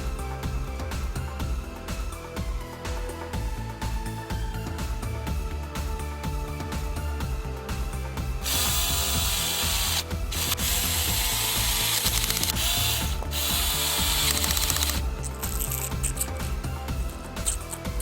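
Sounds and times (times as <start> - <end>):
cordless drill running: 8.4 - 15.1.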